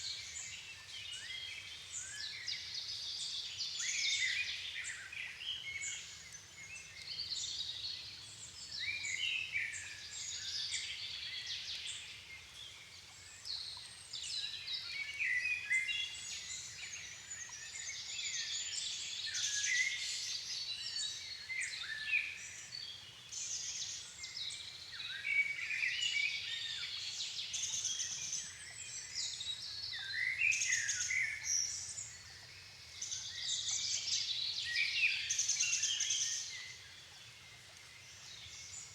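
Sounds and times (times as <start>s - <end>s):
songbirds singing: 3.8s - 38.9s.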